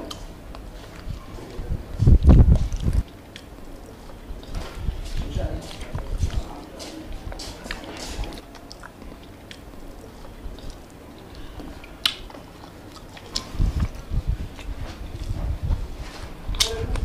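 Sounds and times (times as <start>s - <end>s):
close chewing: 0.0s - 17.0s
wet mouth clicks: 10.5s - 14.0s.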